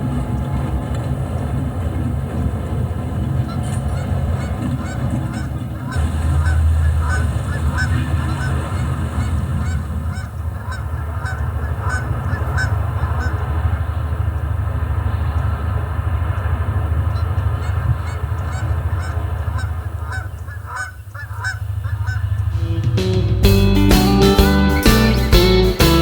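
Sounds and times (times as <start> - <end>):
steady low rumble: 0.0 - 20.7
geese honking: 0.0 - 26.0.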